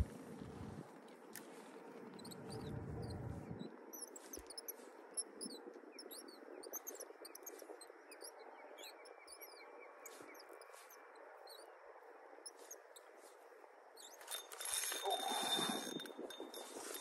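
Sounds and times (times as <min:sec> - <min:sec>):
small birds chirping: 0:00.0 - 0:17.0
wind: 0:00.0 - 0:17.0
low rumble gust: 0:02.4 - 0:03.7
water: 0:12.4 - 0:17.0.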